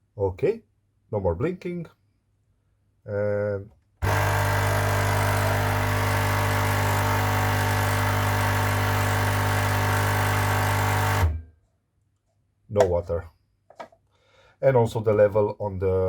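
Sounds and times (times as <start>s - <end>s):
coffee machine pump buzzing: 4.0s - 11.3s.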